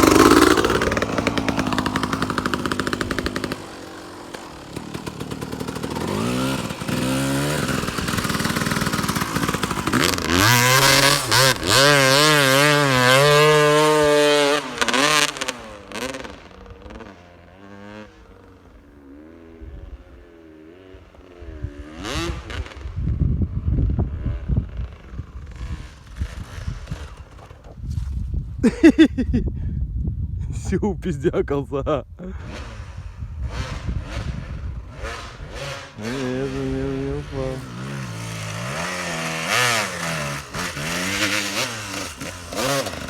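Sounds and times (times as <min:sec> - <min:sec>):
motorcycle engine revving: 0:00.0 - 0:29.2, 0:32.2 - 0:43.0.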